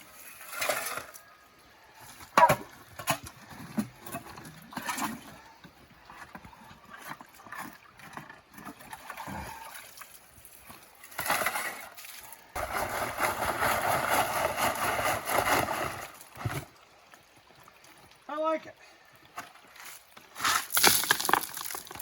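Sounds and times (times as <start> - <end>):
small knocks and scrapes: 19.3 - 22.0.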